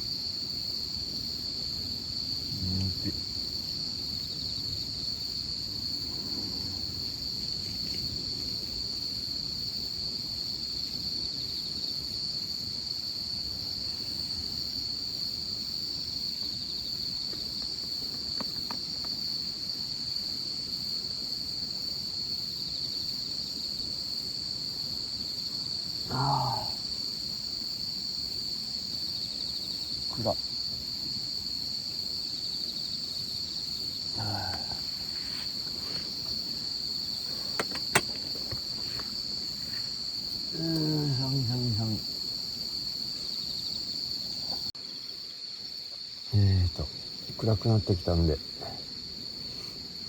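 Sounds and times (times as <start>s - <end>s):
insects singing: 0.0s - 50.0s
low voice-like sound: 2.5s - 3.2s, 26.1s - 26.8s, 34.2s - 34.8s.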